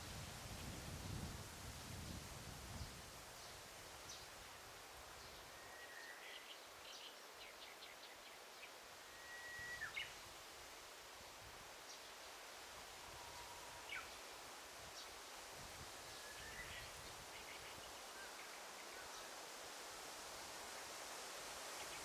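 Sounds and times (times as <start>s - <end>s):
soft steady hiss: 0.0s - 22.0s
whistled birdsong: 5.2s - 10.2s, 13.2s - 14.2s, 16.1s - 19.3s.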